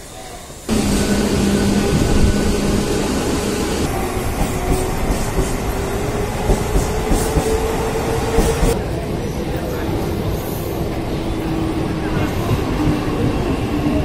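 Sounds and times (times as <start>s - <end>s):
train wheels on rails: 0.5s - 14.0s
train motor hum: 0.7s - 8.8s.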